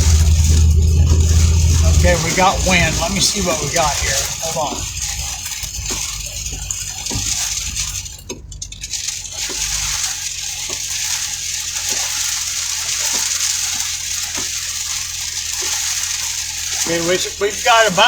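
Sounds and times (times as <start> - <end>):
low rumble: 0.0 - 10.0
heavy rain on a vehicle: 0.0 - 18.0.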